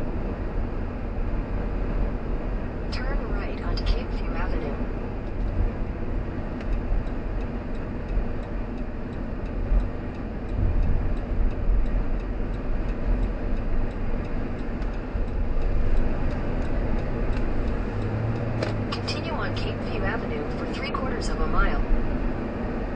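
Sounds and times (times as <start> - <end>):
road and engine rumble: 0.0 - 22.9
car turn signal clicking: 6.5 - 19.8.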